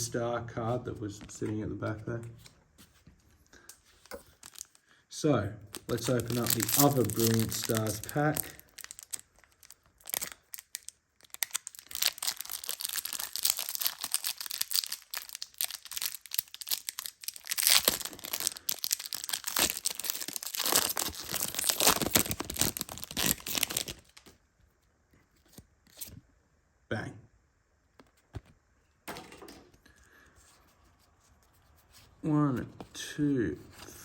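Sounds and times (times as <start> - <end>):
foil wrapper crinkling and tearing: 3.9 - 4.8, 5.7 - 24.4.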